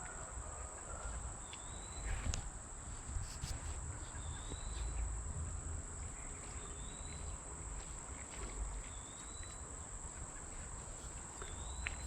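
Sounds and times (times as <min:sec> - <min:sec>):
high-pitched insect chorus: 0:03.3 - 0:07.8.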